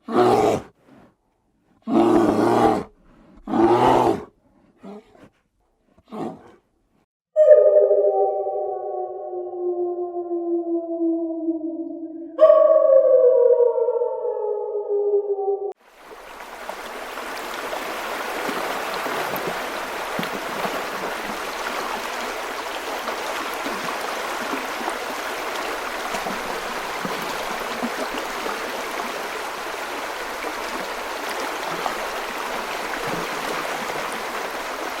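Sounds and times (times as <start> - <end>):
running water rushing: 15.8 - 35.0.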